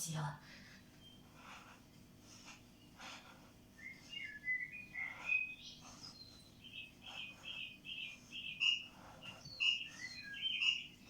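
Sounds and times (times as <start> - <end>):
bird chirping and twittering: 3.8 - 11.0.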